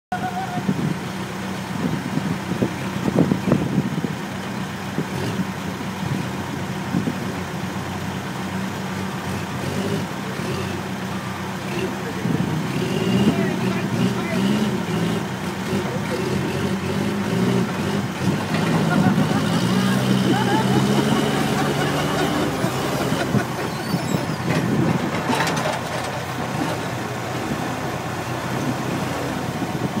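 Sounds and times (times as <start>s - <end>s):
diesel engine idling: 0.1s - 30.0s
machine clanks and rattles: 21.4s - 26.9s
metal knocks and clanks: 24.3s - 26.8s.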